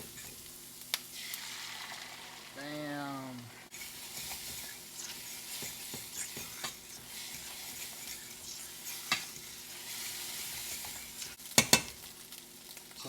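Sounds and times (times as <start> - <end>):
utensil tapping and scraping: 0.0 - 0.5, 3.7 - 12.0
eggs sizzling in a pan: 0.0 - 13.0.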